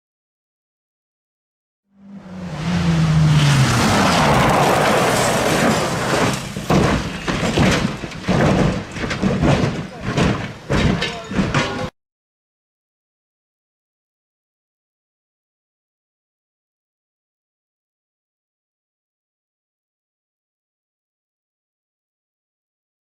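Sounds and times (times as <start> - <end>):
loud rush of noise: 2.0 - 7.6
crash bangs and clattering knocks: 2.6 - 11.9.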